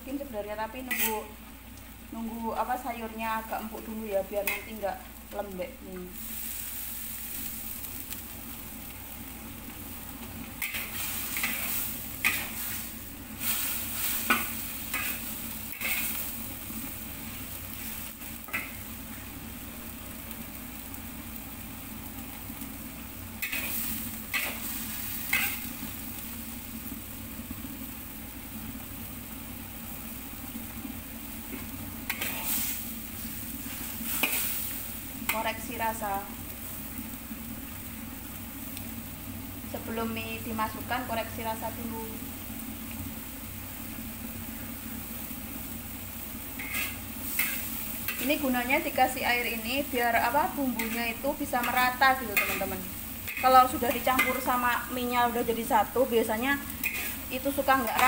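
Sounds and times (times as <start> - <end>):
vegetables boiling hiss: 0.0 - 58.0
metal spatula scraping wok: 0.8 - 1.3, 10.6 - 16.4, 23.4 - 25.7, 31.5 - 32.9, 33.7 - 35.4, 46.6 - 48.5, 50.7 - 54.8, 56.7 - 58.0.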